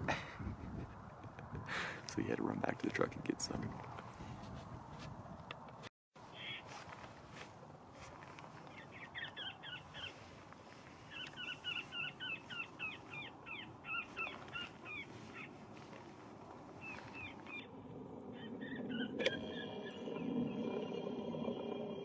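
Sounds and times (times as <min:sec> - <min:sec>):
short bird-like calls: 0:06.3 - 0:06.7, 0:11.1 - 0:15.6.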